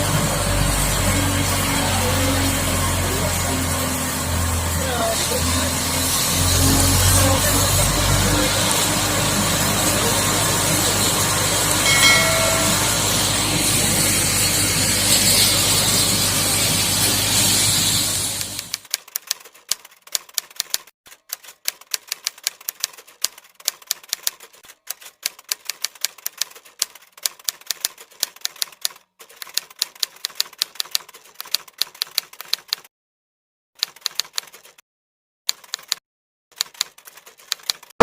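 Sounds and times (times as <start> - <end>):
high-pressure water spray hiss: 14.3 - 18.7
typewriter key clacks: 18.6 - 32.9, 33.8 - 34.8, 35.5 - 36.0, 36.6 - 37.9.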